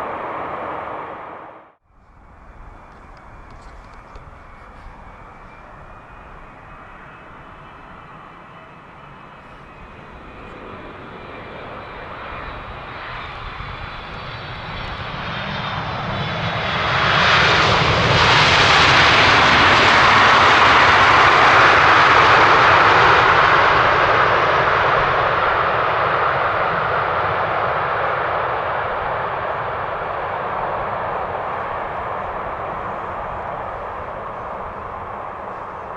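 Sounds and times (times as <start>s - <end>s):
high engine whine: 0.0s - 24.0s
jet airliner engines passing: 0.0s - 35.9s.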